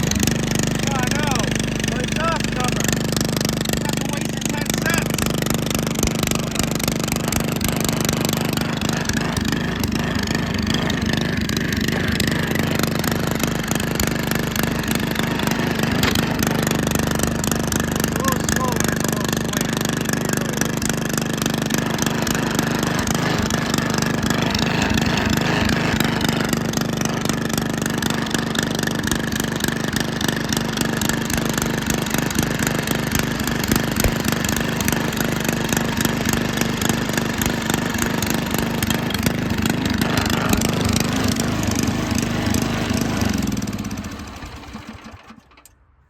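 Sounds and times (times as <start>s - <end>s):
garden tractor engine running: 0.0s - 45.9s.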